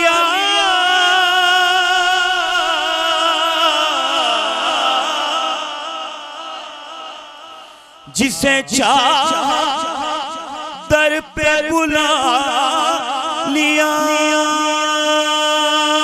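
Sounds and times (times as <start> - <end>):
man singing with echo: 0.0 - 16.0.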